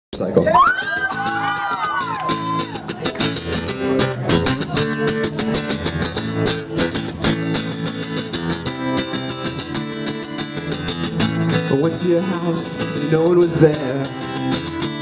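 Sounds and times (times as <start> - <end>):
crowd whooping: 0.4 - 3.4
guitar strumming: 0.7 - 15.0.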